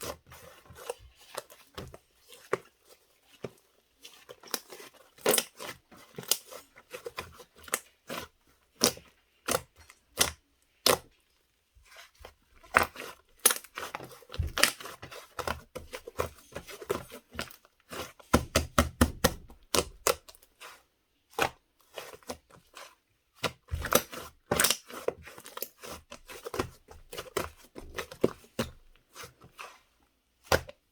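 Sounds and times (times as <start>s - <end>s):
slime clicking and squishing: 12.7s - 20.4s, 23.4s - 28.8s.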